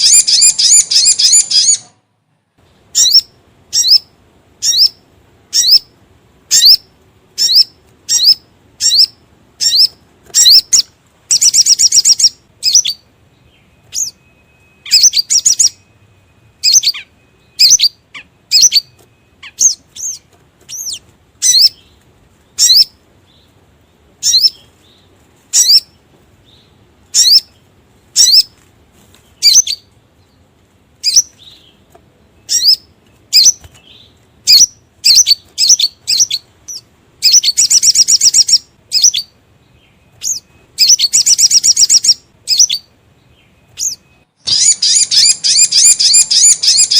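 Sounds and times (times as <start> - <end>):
high bird call notes: 0.0 - 2.0, 2.8 - 28.6, 29.3 - 30.4, 31.0 - 46.9
rapid bird trill: 0.0 - 2.0, 2.8 - 28.6, 29.3 - 30.4, 31.0 - 46.9.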